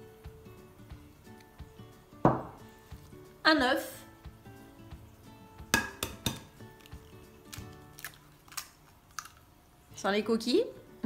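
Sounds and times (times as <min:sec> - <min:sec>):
soft background music: 0:00.0 - 0:11.0
egg tapping on glass bowl: 0:05.7 - 0:06.5.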